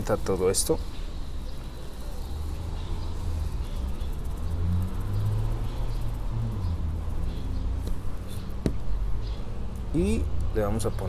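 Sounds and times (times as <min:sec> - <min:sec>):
vehicle engine running: 0:02.1 - 0:10.6.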